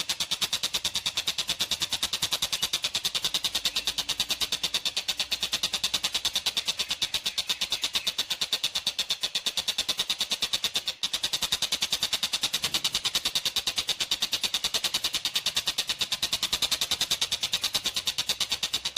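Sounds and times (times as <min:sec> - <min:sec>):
kingfisher rattling call: 0:00.4 - 0:11.1.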